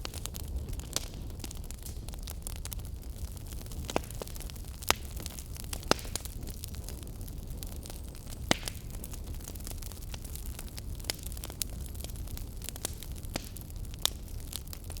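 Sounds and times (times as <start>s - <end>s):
fire crackling: 0.0s - 15.0s.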